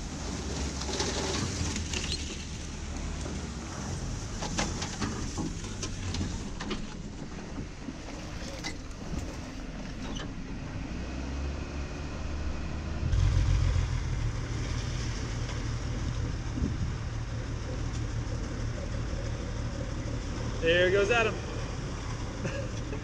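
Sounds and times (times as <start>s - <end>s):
car engine running: 1.6s - 23.0s
car engine idling: 11.6s - 23.0s.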